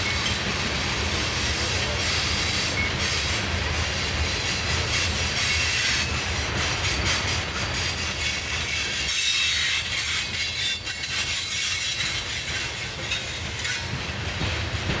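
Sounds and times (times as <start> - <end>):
train wheels rumbling on rail: 0.0 - 15.0
high metallic wheel squeal: 4.5 - 6.2, 6.8 - 14.0.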